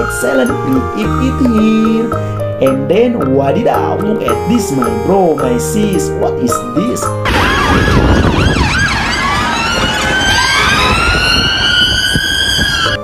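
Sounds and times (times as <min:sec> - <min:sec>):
emergency vehicle sirens: 0:07.2 - 0:13.0
traffic rumble: 0:07.3 - 0:13.0.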